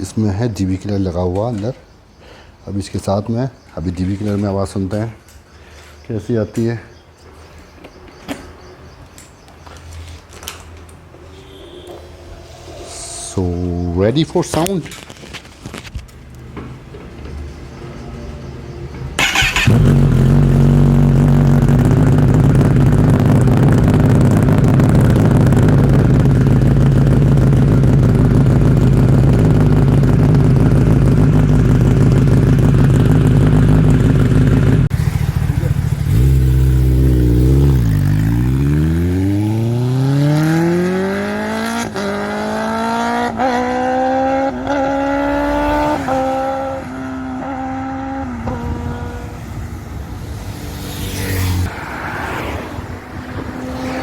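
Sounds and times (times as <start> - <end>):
motorcycle engine starting: 12.6 - 54.0
motorcycle engine idling: 17.2 - 38.6
motorcycle pulling away: 18.7 - 54.0.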